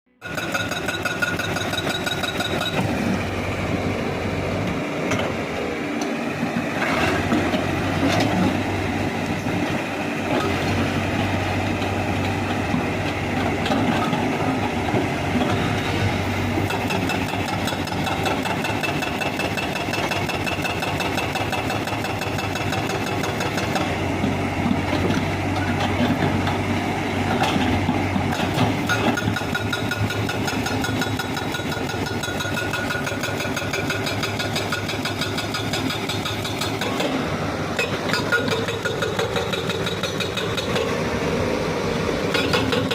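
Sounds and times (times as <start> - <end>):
excavator diesel engine running: 0.1 - 42.9.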